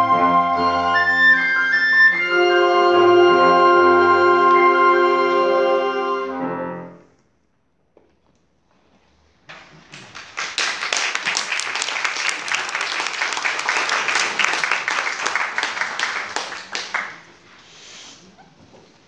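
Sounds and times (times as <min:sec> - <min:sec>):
audience applauding: 0:09.5 - 0:17.5.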